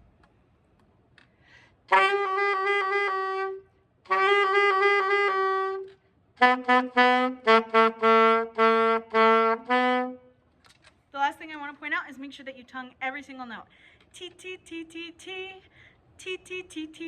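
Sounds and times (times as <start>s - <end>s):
saxophone notes: 1.9s - 10.4s.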